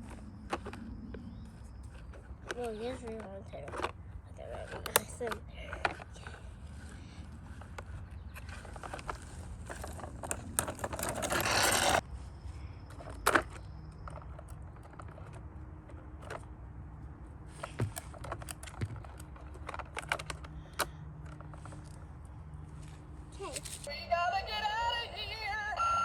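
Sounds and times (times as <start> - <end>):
plastic toys clicking and rattling: 1.8 - 12.0, 12.9 - 16.5, 17.6 - 22.0, 23.4 - 23.9.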